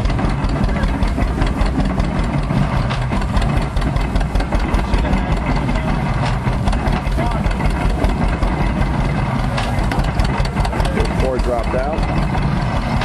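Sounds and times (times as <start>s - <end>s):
baler mechanical knocking: 0.0s - 13.0s
tractor engine running: 0.0s - 13.0s.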